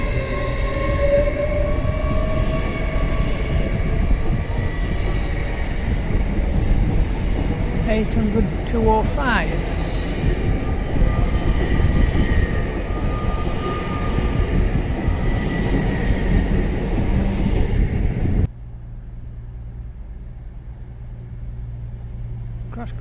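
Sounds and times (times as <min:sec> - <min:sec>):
train rumble with high whine: 0:00.0 - 0:23.0.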